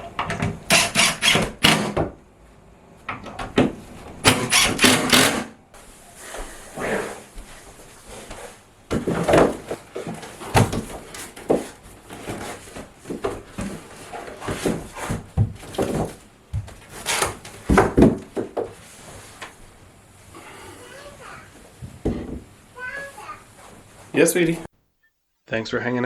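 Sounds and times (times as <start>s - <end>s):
knocks and clunks on wood: 8.9s - 11.7s, 14.4s - 18.8s, 21.8s - 22.5s.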